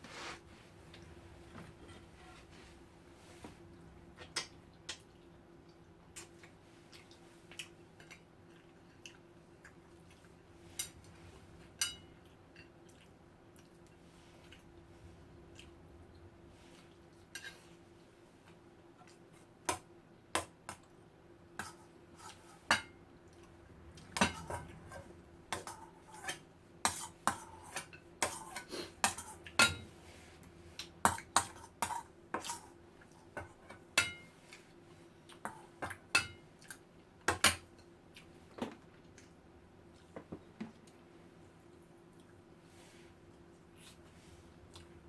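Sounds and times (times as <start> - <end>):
faint hum: 0.0 - 28.1
cutlery clinking on a plate: 33.4 - 34.3.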